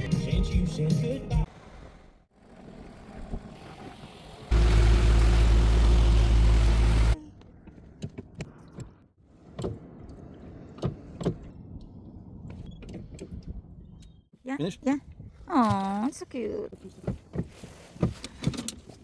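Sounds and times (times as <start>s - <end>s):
loud engine rumble: 4.5s - 7.2s.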